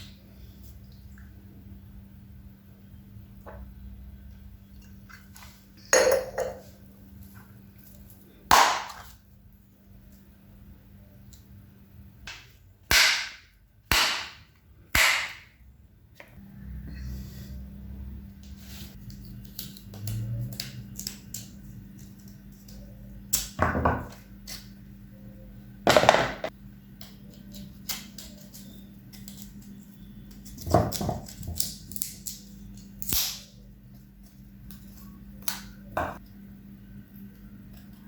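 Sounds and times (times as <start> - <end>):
coconut shell being struck: 8.5 - 9.1, 12.3 - 15.6.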